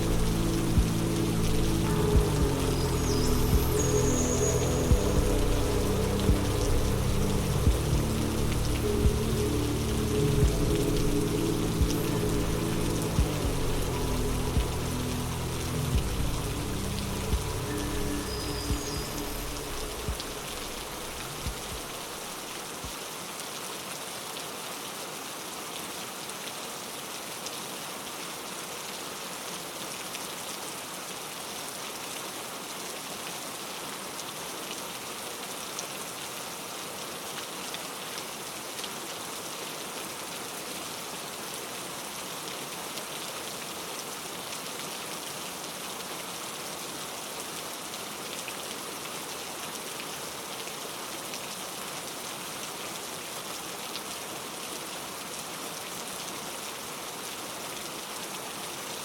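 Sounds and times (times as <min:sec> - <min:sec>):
low rumble: 0:00.0 - 0:22.4
dense rainfall: 0:00.0 - 0:59.0.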